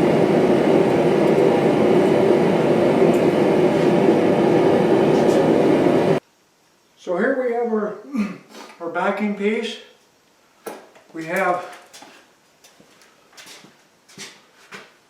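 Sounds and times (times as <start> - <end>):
forge roaring: 0.0 - 6.2.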